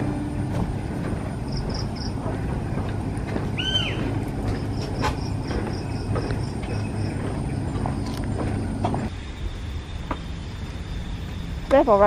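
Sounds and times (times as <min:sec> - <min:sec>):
birds calling: 0:00.0 - 0:09.2
steady low rumble: 0:00.0 - 0:12.0
arched bird call: 0:03.6 - 0:04.2.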